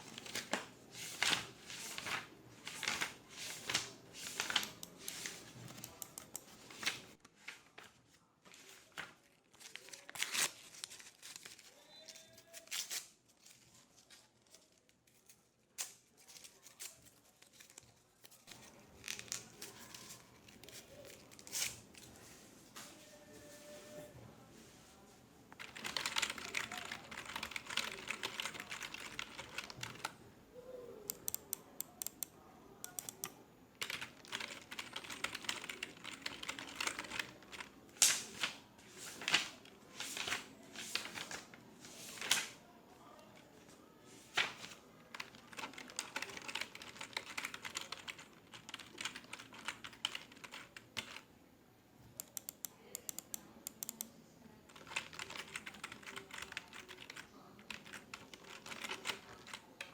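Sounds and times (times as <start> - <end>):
computer keyboard typing: 2.7 - 7.0, 25.6 - 30.2, 31.1 - 37.8, 45.1 - 51.3, 52.2 - 54.1, 54.7 - 59.9.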